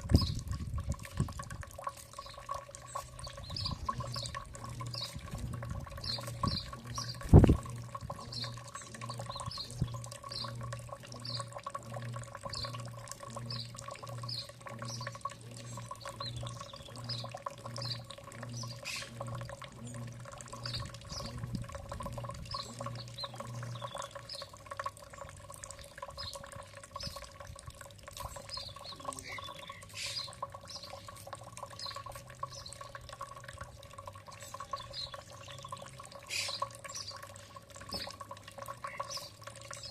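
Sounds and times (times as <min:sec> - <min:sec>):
steady low hum: 0:00.0 - 0:26.7
small bird chirping: 0:05.9 - 0:07.3, 0:08.2 - 0:10.6, 0:22.5 - 0:24.5.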